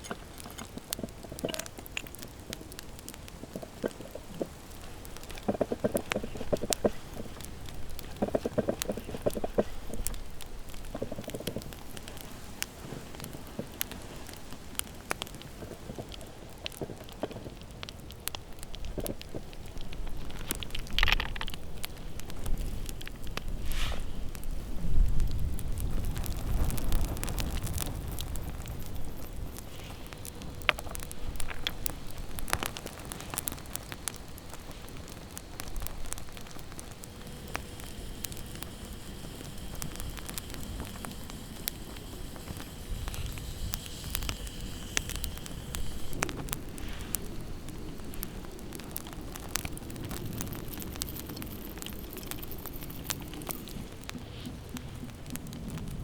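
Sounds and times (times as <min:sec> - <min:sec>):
campfire crackling: 0:00.0 - 0:56.0
sharp pops and snaps: 0:00.0 - 0:56.0.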